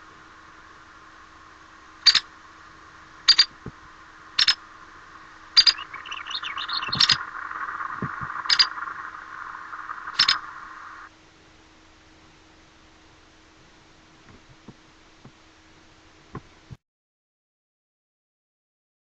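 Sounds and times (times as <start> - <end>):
steady hiss: 0.0 - 16.8
soft bird chatter: 1.8 - 11.1.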